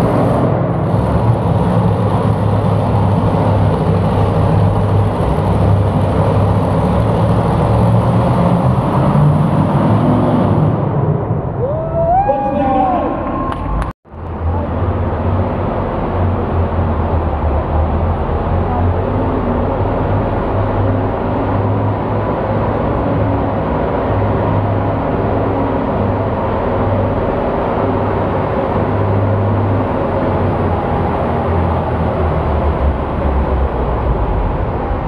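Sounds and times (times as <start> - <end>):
heavy engine droning: 0.0 - 35.0
arena crowd noise: 11.6 - 15.2.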